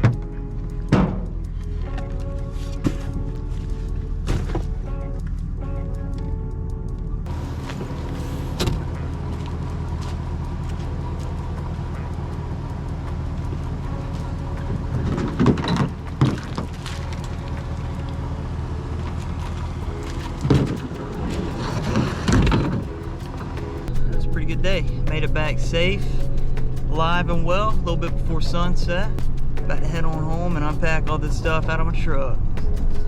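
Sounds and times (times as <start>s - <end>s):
truck engine running: 0.0s - 33.0s
knocks and thumps: 0.9s - 2.1s, 20.0s - 23.0s.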